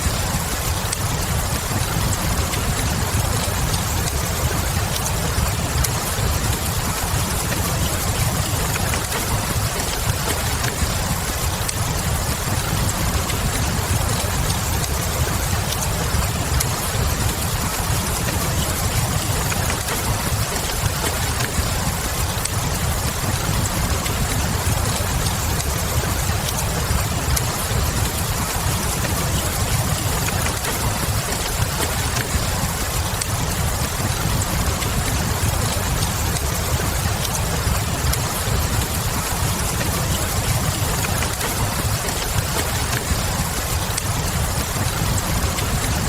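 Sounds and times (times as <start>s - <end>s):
fire crackling: 0.0s - 46.0s
rain hiss: 0.0s - 46.0s.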